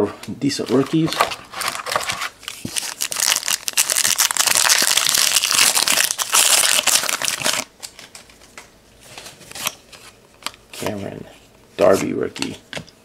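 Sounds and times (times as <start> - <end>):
plastic wrapper crinkling: 0.7 - 8.4.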